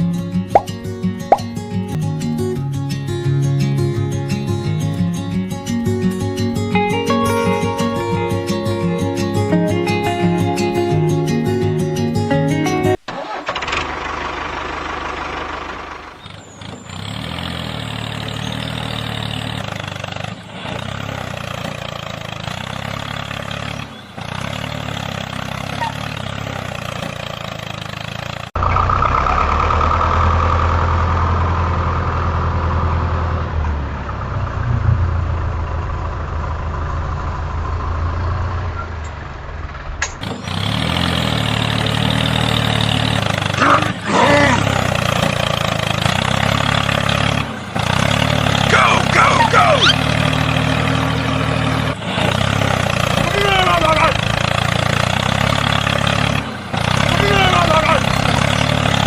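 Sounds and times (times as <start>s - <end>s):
tractor engine idling: 13.0s - 59.0s.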